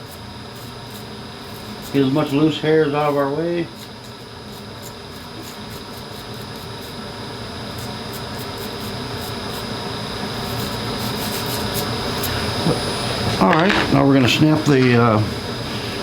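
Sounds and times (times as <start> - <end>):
rush of air from blower: 15.3 - 16.0.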